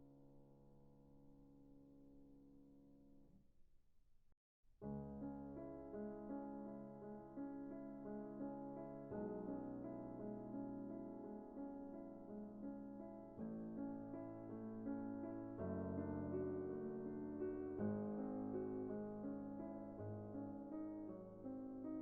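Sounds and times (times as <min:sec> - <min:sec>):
soft keyboard music: 0:04.8 - 0:22.0.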